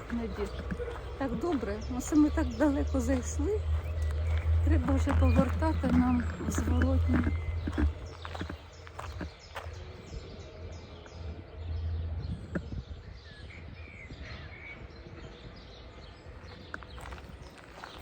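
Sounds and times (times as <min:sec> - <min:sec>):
steady low rumble: 0:00.0 - 0:14.2
birds chirping and calling: 0:00.0 - 0:18.0.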